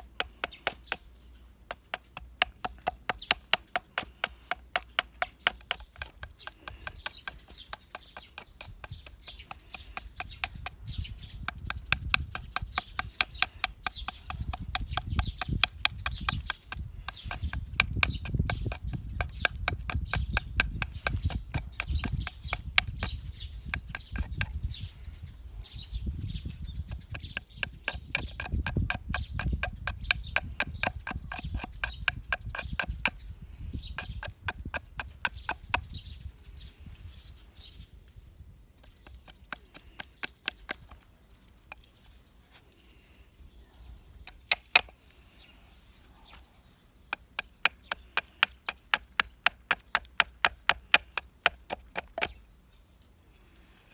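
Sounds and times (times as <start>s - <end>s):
hand tools knocking on wood: 1.6s - 24.6s, 26.9s - 33.2s, 33.9s - 36.0s, 47.1s - 52.4s.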